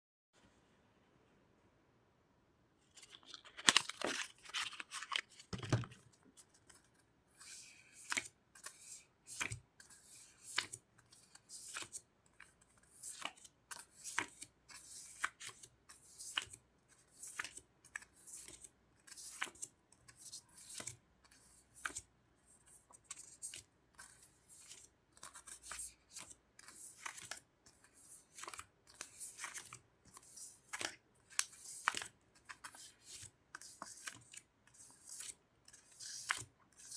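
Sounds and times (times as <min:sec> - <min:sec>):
sticker packaging crinkling and tearing: 0:03.0 - 0:05.5.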